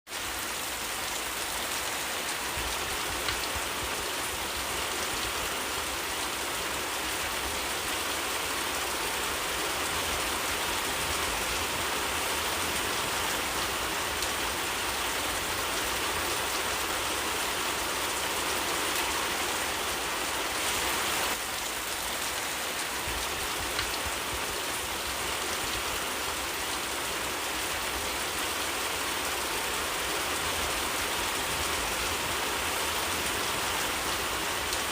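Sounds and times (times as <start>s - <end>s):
steady rain in forest: 0.0s - 34.9s.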